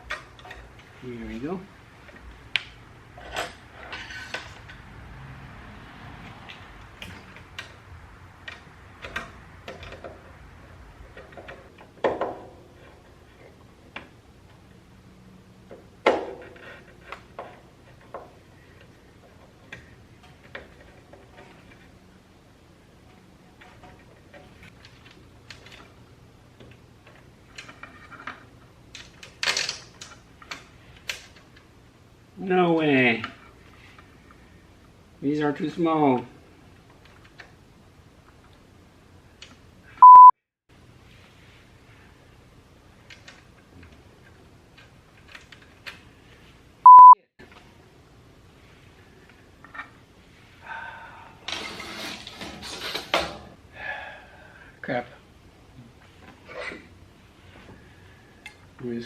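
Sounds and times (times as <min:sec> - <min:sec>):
small clicks of tools and parts: 0:43.0 - 0:46.0
rustling scrape: 0:51.6 - 0:53.0.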